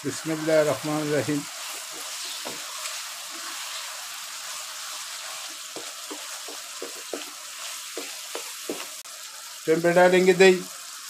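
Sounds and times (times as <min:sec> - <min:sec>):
wooden spatula stirring food: 0:00.0 - 0:09.0
food sizzling in a wok: 0:00.0 - 0:11.0
spatula knocking against pan: 0:01.9 - 0:02.7, 0:05.7 - 0:08.9.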